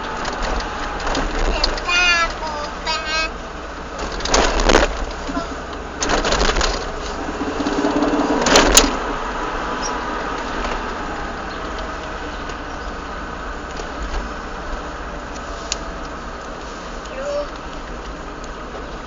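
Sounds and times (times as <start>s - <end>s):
car running noise: 0.0s - 19.0s
rapid clacking rattle: 4.0s - 9.0s.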